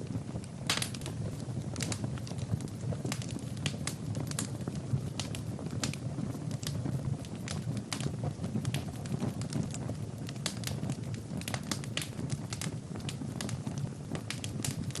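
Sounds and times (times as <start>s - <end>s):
fire crackling in a fireplace: 0.0s - 15.0s.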